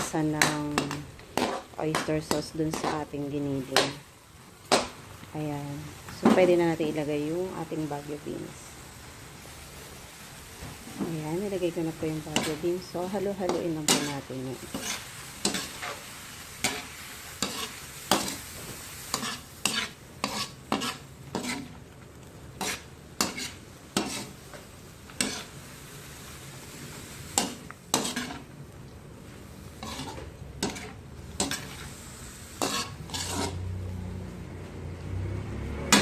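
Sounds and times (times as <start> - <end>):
food sizzling in a pan: 0.0 - 36.0
utensil scraping a pan: 0.6 - 3.1, 12.1 - 21.8, 22.6 - 25.6, 27.3 - 28.5, 29.8 - 32.0, 32.6 - 33.7.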